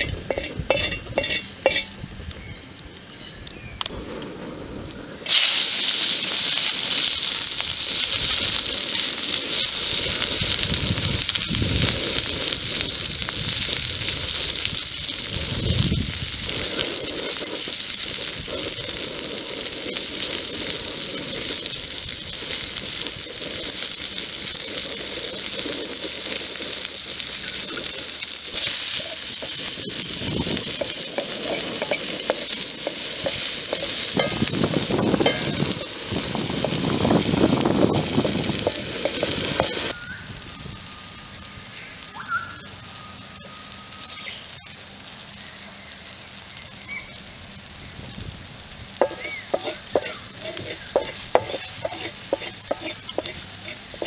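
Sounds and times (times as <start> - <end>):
vegetables sizzling in metal pan: 0.0 - 3.8, 5.2 - 54.0
wooden spatula knocking: 49.0 - 50.2, 51.0 - 53.3.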